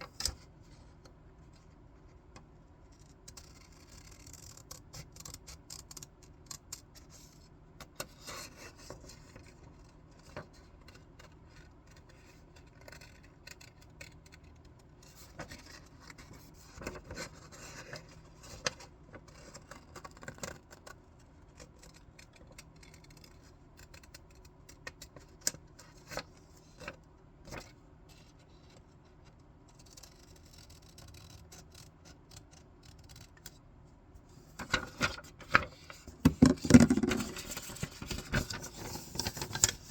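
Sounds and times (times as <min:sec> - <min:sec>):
scissors cutting paper: 0:29.8 - 0:33.5
paper handling: 0:34.5 - 0:39.9.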